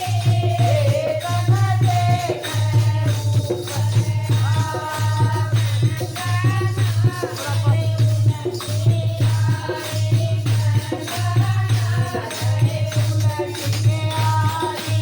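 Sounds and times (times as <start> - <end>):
jingling hand percussion: 0.0 - 15.0.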